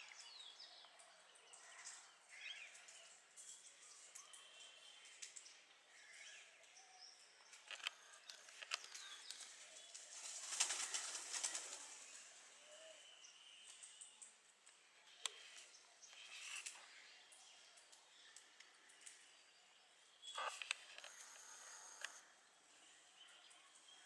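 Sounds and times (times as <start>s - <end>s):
birds chirping: 0.0s - 24.0s
rustle of fluttering wings: 8.4s - 12.6s
sharp clicks: 20.3s - 22.2s.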